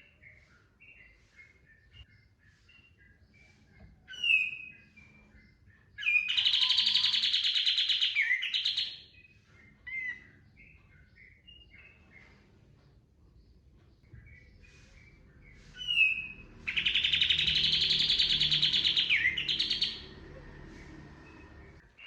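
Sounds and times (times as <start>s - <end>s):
songbird chirps and calls: 0.0s - 22.0s
loud fast rattling bird trill: 6.1s - 9.0s, 15.8s - 20.1s.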